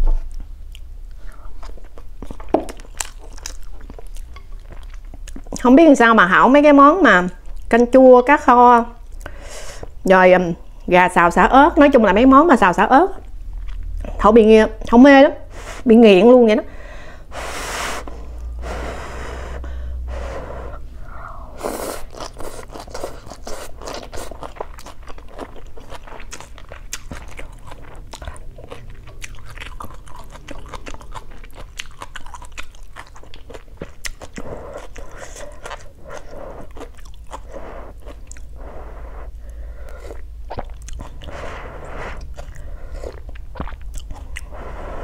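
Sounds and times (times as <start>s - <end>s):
crunchy chewing: 0.3s - 5.6s, 21.6s - 45.0s.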